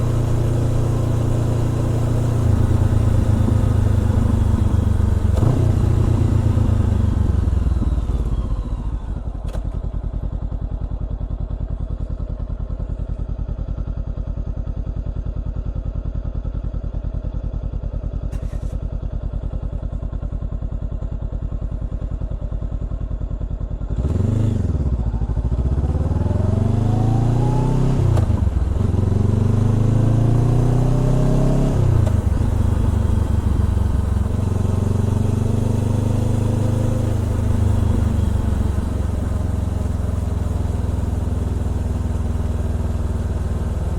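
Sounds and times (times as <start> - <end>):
motorcycle engine idling and revving: 0.0 - 43.9.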